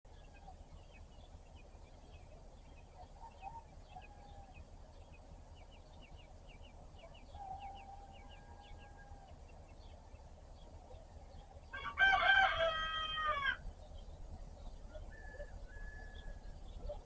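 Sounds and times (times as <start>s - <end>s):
low steady rumble: 0.1s - 17.0s
small birds chirping: 0.1s - 17.0s
faint rooster crowing: 3.0s - 4.8s, 7.0s - 9.6s, 11.7s - 13.7s, 14.8s - 17.0s.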